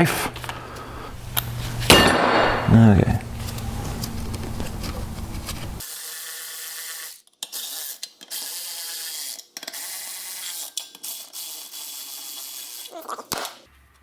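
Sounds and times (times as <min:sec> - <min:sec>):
electric blower motor humming: 0:03.1 - 0:05.8.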